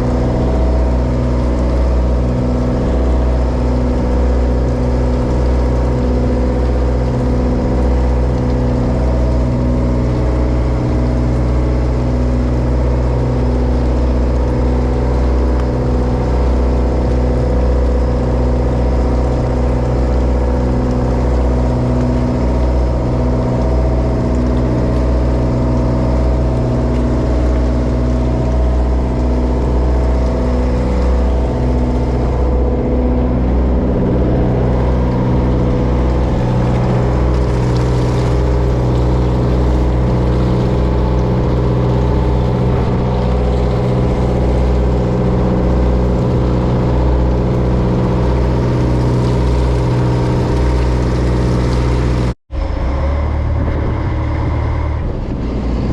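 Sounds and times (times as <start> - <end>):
boat diesel engine droning: 0.0 - 55.9.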